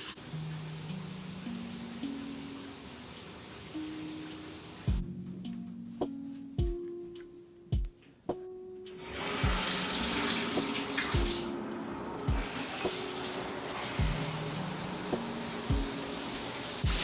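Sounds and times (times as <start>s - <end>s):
water running from a tap: 0.0s - 5.0s, 8.9s - 17.0s.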